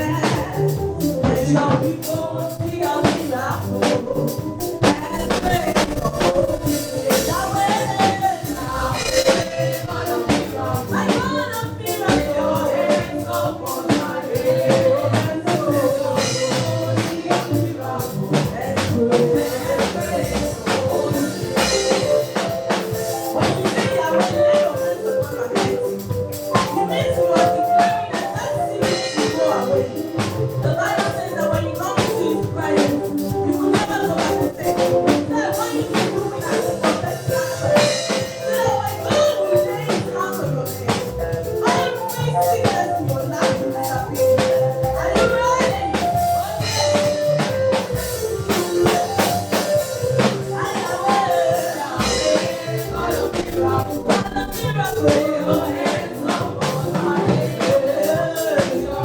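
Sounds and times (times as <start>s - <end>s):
gospel band playing: 0.0s - 59.0s
people singing: 0.0s - 59.0s.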